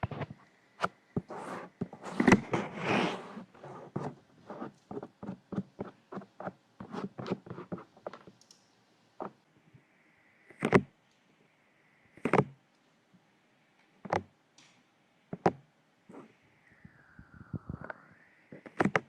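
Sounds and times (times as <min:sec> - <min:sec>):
fingers rubbing on microphone: 0:00.0 - 0:08.3.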